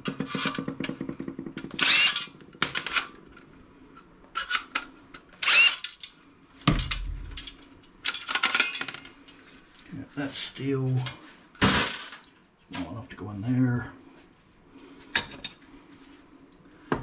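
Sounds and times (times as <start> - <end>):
dull thump: 6.7 - 7.6.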